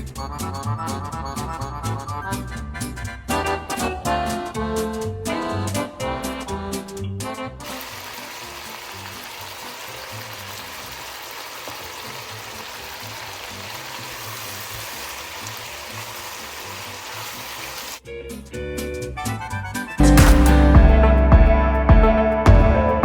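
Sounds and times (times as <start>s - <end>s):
chicken sizzling in a pan: 7.6s - 18.0s.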